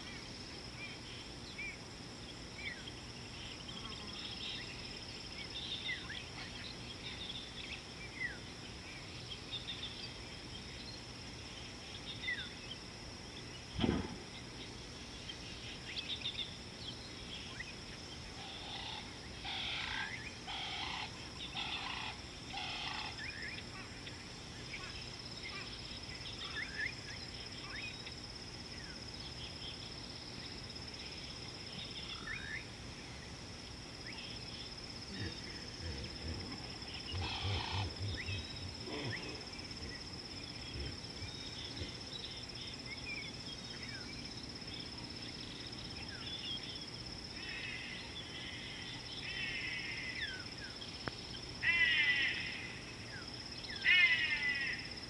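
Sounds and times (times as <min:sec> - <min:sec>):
harsh bird calls: 0:35.1 - 0:42.1.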